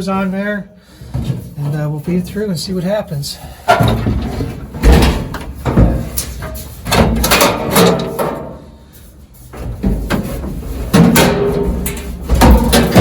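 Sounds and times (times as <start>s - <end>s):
knocks and clunks handling truck parts: 1.0s - 1.8s, 3.6s - 8.8s, 9.5s - 13.0s.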